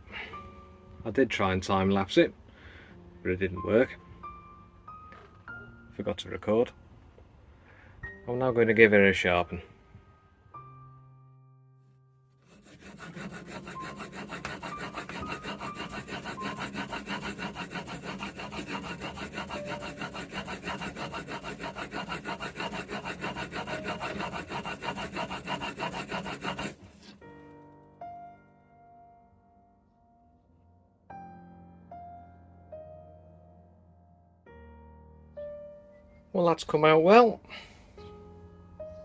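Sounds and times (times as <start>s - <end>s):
chisel rubbing on sharpening stone: 12.4s - 27.2s.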